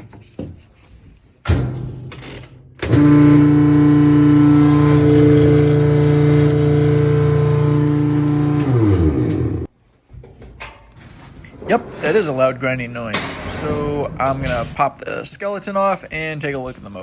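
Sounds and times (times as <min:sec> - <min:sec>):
washing machine grinding drone: 0:02.8 - 0:09.7.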